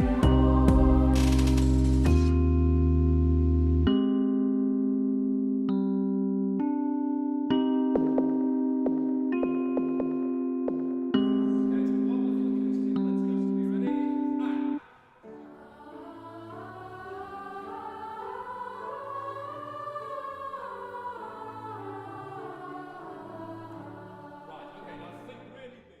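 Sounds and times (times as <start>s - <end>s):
choir-like voices singing: 0.0s - 2.3s, 14.4s - 26.0s.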